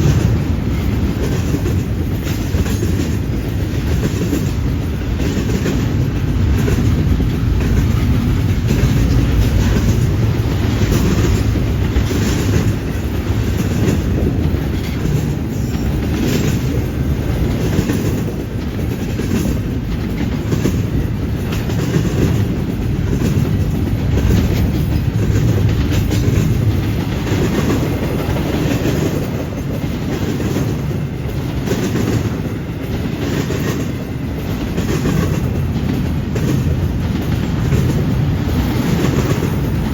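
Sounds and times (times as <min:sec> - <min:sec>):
wheels clacking over rail joints: 0:00.0 - 0:39.9
wheels rumbling on rail: 0:00.0 - 0:39.9.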